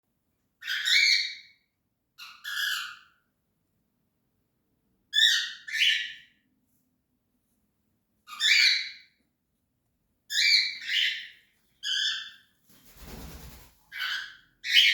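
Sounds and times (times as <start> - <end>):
cockatiel screechy calls: 8.3 - 9.0.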